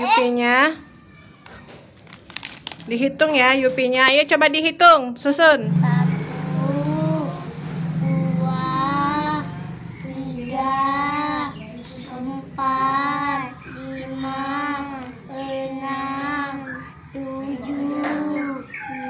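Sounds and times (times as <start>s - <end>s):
child-like voice singing: 8.1s - 19.0s.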